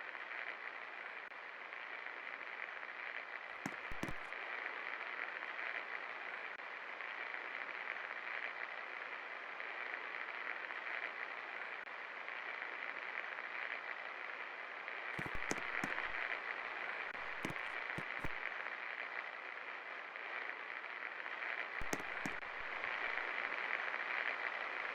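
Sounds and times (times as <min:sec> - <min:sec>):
short clicks: 0:21.8 - 0:23.2.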